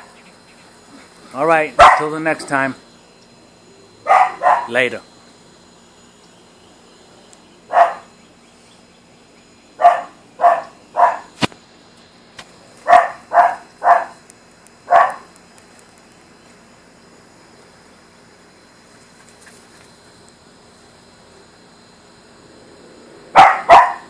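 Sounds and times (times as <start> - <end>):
dog barking: 1.8 - 2.1, 4.0 - 4.8, 7.7 - 8.1, 9.8 - 11.3, 12.8 - 14.2, 14.9 - 15.3, 23.4 - 24.0.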